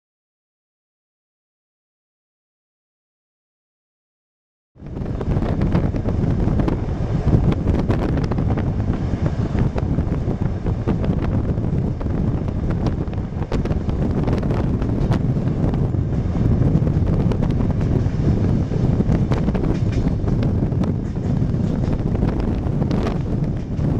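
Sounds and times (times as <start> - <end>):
train rumbling at speed: 4.8 - 23.9
wind buffeting microphone: 4.8 - 23.9.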